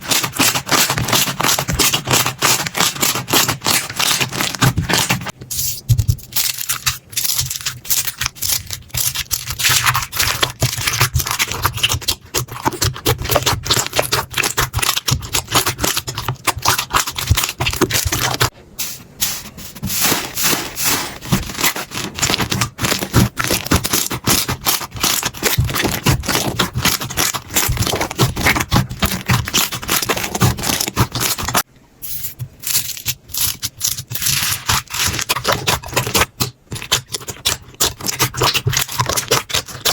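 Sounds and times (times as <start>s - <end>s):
slime crackling and clicking: 32.8s - 39.9s.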